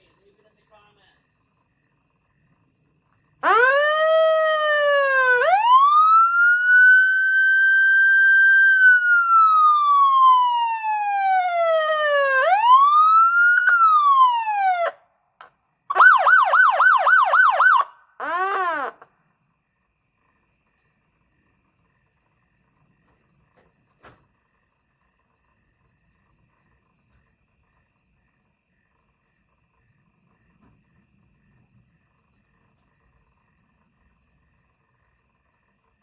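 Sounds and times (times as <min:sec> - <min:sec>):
fire truck siren wailing and yelping: 0:03.4 - 0:15.0, 0:15.9 - 0:19.1.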